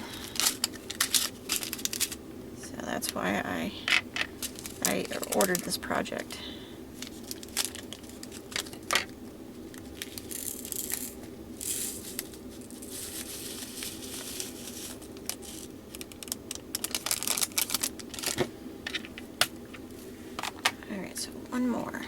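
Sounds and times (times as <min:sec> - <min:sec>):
plastic bags crinkling: 0:00.0 - 0:02.2, 0:03.9 - 0:05.8, 0:06.9 - 0:19.1
small plastic beads rattling: 0:09.9 - 0:18.3.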